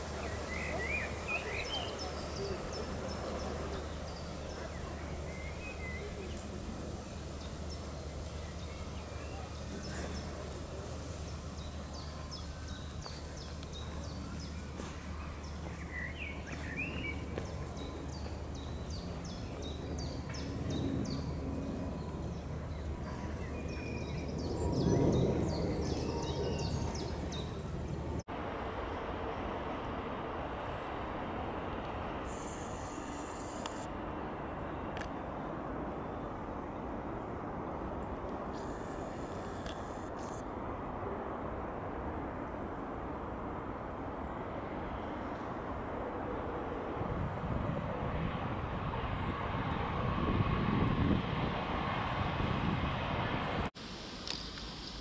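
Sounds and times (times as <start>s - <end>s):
small birds chirping: 0.1s - 28.0s.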